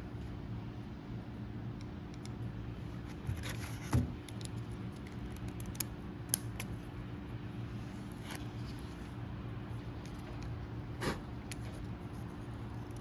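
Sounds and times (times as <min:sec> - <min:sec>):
steady low hum: 0:00.0 - 0:13.0
small parts clicking and tapping: 0:04.2 - 0:06.8.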